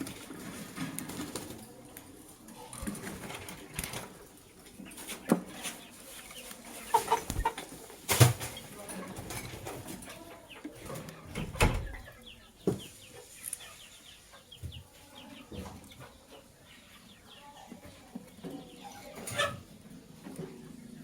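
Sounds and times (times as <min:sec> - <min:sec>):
lovebirds chirping: 0:04.4 - 0:07.8, 0:10.3 - 0:19.5.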